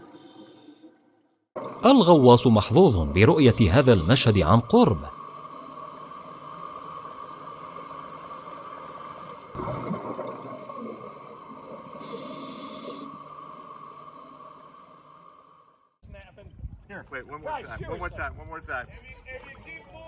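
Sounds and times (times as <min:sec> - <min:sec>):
steady hum: 0:01.7 - 0:15.7
exhaled bubbles underwater: 0:09.6 - 0:12.0
regulator hissing inhale: 0:12.0 - 0:15.7.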